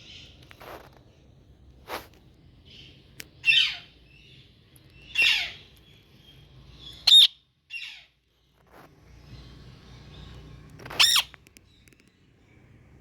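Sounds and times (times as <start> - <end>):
parrot calling harshly: 5.1 - 5.6, 7.0 - 8.1, 11.0 - 11.3.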